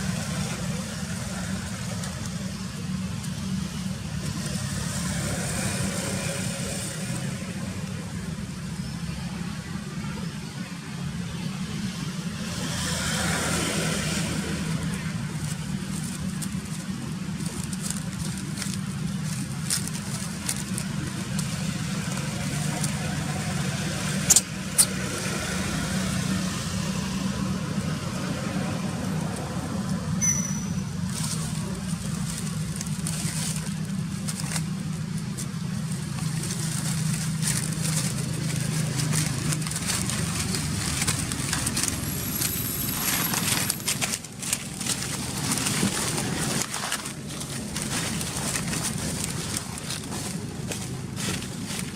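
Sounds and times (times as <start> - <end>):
low engine hum: 0.0 - 51.9
sharp clicks and crackles: 14.1 - 23.3, 29.3 - 51.9.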